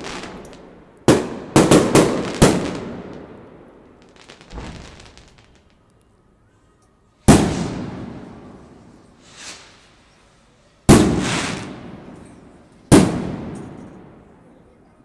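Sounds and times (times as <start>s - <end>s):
faint firework hiss: 0.0s - 6.1s, 7.2s - 14.4s
firework shells bursting: 4.0s - 5.9s.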